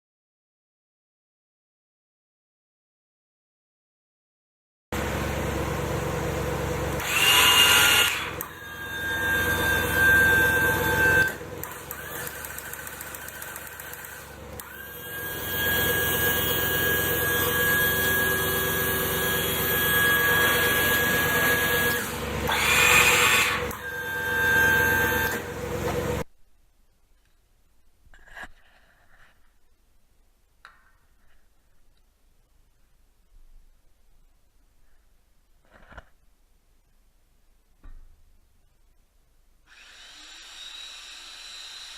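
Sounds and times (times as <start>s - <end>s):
high hydraulic whine: 5.0s - 26.2s
skid steer engine running: 5.0s - 26.2s.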